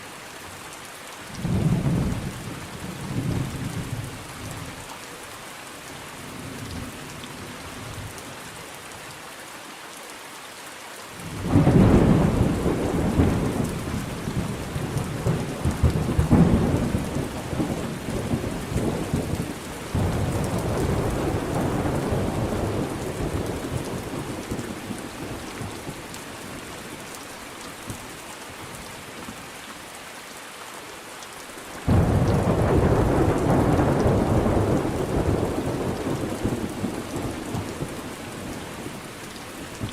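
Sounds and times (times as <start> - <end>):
rain falling: 0.0 - 39.9
thunder rolling: 31.9 - 37.6.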